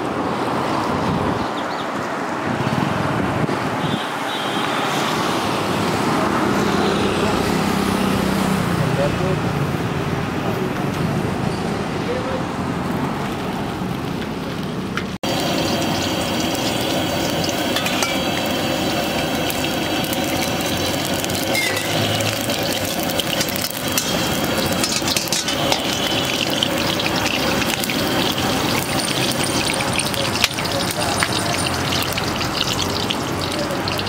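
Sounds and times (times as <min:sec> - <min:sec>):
road traffic: 0:00.0 - 0:34.0
oil frying in a wok: 0:13.2 - 0:34.0.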